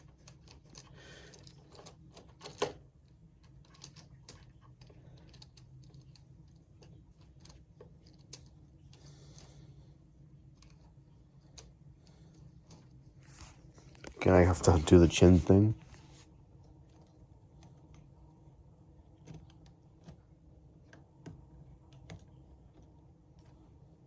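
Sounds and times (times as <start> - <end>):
plastic model wagons clicking: 0.0 - 2.8, 3.4 - 9.6
faint steady hum: 0.0 - 24.0.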